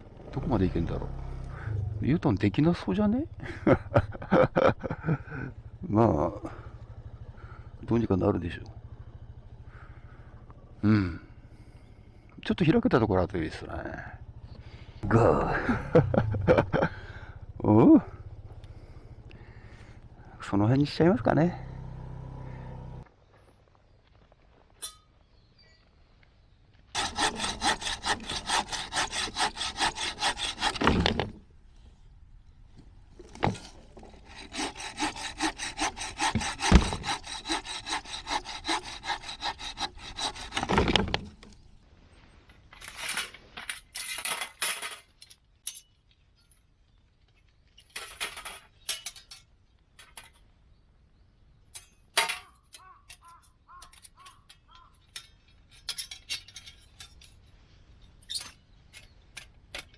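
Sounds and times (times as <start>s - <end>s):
hand saw cutting wood: 27.0s - 31.4s, 33.2s - 41.5s.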